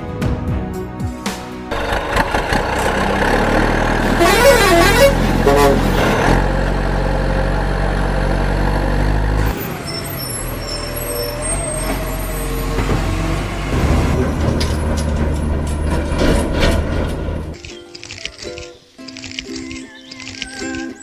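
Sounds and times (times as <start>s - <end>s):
vehicle engine humming: 1.7s - 21.0s.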